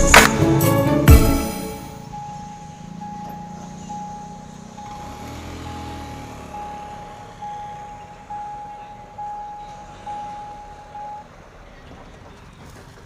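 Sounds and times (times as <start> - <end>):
electronic warning bell ringing: 1.4 - 11.3
train engine rumble: 8.0 - 13.0.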